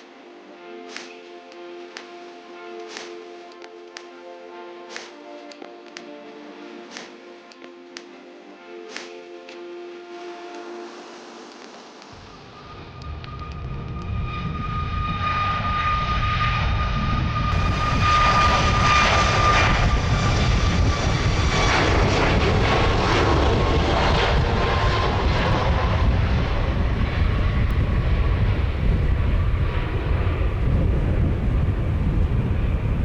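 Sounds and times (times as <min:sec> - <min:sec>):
jet engines rumbling: 0:00.7 - 0:33.0
high engine whine: 0:08.6 - 0:33.0.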